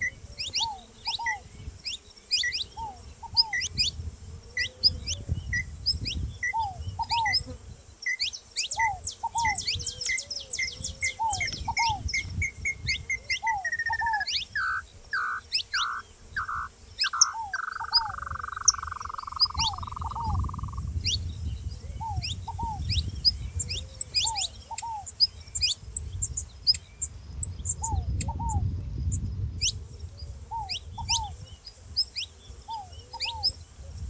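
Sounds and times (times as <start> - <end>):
finch chirping: 0.4 - 4.0, 8.2 - 21.2.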